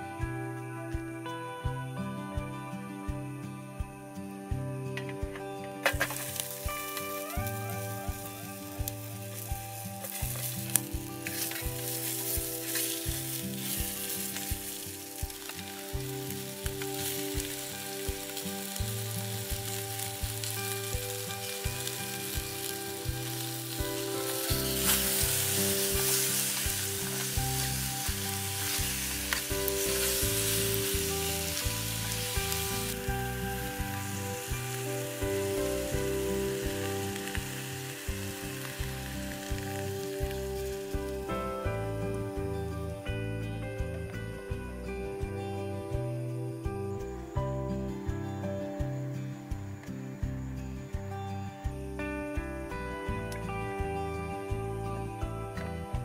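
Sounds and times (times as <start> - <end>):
food sizzling in a pan: 5.8 - 43.0.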